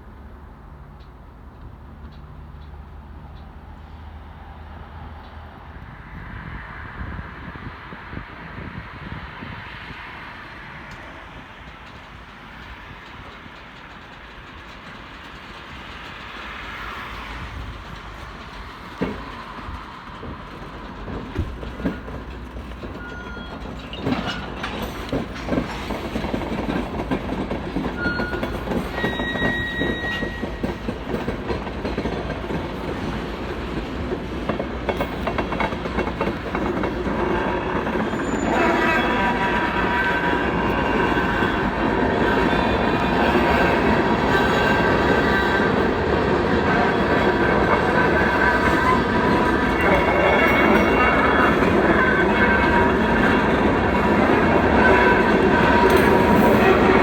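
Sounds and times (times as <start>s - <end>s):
freight train rumbling: 0.0s - 57.0s
wheels clicking over rail joints: 10.8s - 57.0s
high-pitched wheel squeals: 23.0s - 24.9s, 28.0s - 30.7s, 37.3s - 45.9s.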